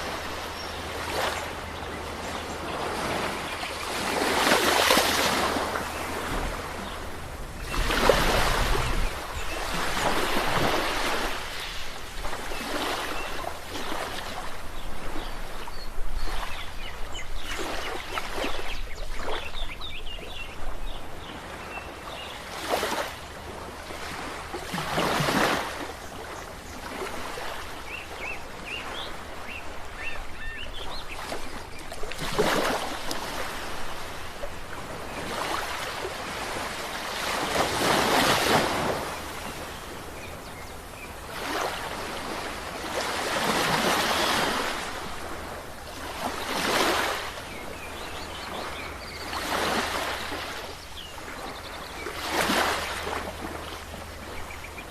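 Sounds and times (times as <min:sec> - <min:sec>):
steady surf wash: 0:00.0 - 0:16.6, 0:31.2 - 0:54.9
waves breaking on shore: 0:00.0 - 0:54.9.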